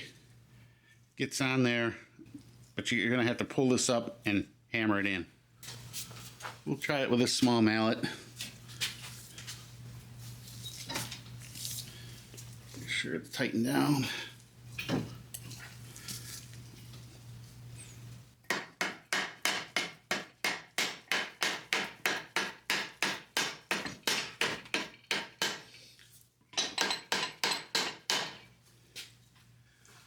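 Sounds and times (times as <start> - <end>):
mallet hammering metal: 18.5 - 25.6.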